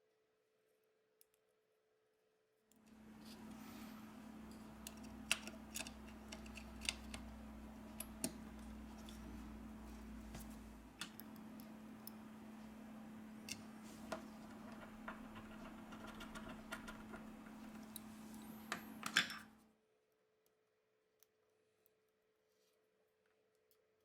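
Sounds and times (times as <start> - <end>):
steady low hum: 2.8 - 19.6
small tool clicks and taps: 4.8 - 7.3.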